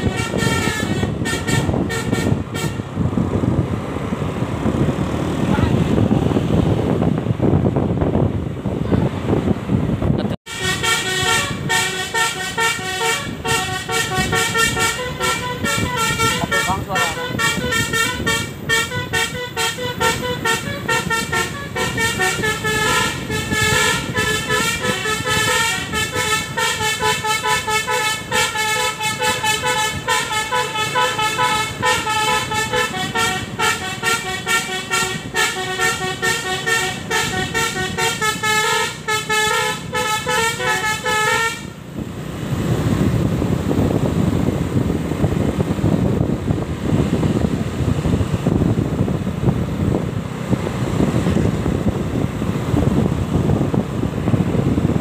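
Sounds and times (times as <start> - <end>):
horn-like pitched notes: 0.0 - 2.9, 10.5 - 41.8
steady rushing noise: 0.0 - 55.0.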